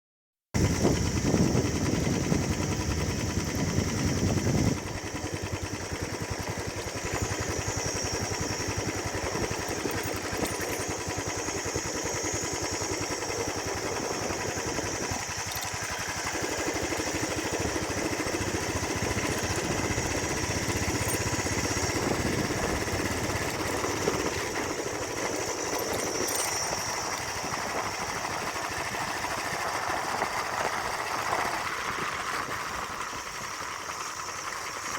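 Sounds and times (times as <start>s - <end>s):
motorcycle engine exhaust beat: 13.2s - 27.6s.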